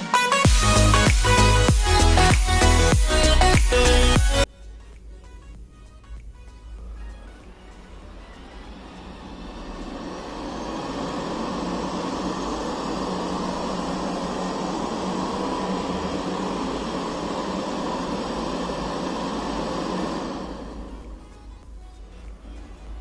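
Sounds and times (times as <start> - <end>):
robot vacuum suction fan hiss: 7.9 - 23.0.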